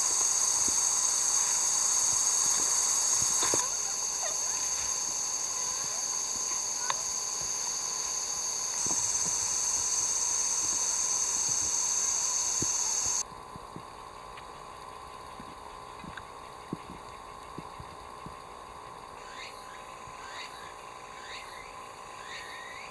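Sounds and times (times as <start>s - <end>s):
shrill insect chorus: 0.0s - 13.2s, 14.0s - 22.9s
faint ticks: 8.7s - 19.2s.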